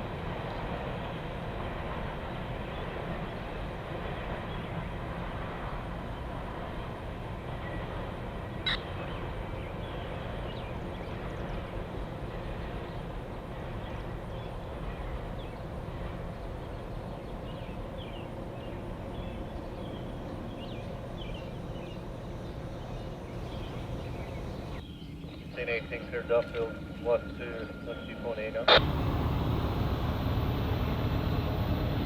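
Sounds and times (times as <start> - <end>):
train rumbling past: 0.0 - 32.0
low hum: 28.7 - 32.0.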